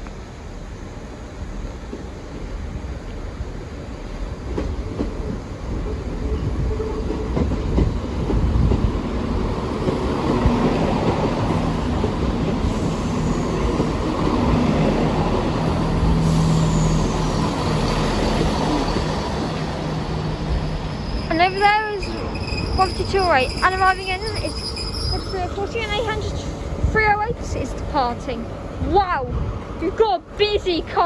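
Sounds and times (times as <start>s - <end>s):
diesel train engine drone: 0.0s - 31.0s
train wheel rumble: 0.0s - 31.0s
faint high squeals: 20.6s - 25.8s.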